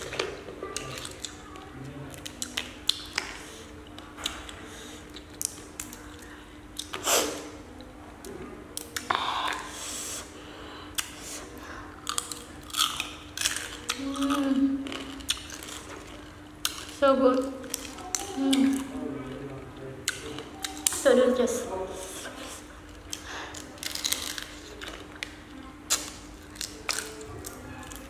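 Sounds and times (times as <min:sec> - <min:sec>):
crunching and chewing: 0:00.0 - 0:09.8, 0:10.9 - 0:21.0, 0:22.4 - 0:28.0
crab shells cracking: 0:12.0 - 0:17.0, 0:23.0 - 0:28.0.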